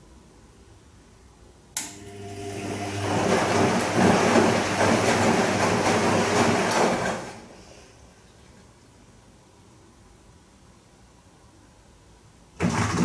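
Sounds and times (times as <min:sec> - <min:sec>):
washing machine motor hum: 0:01.8 - 0:08.8, 0:12.6 - 0:13.0.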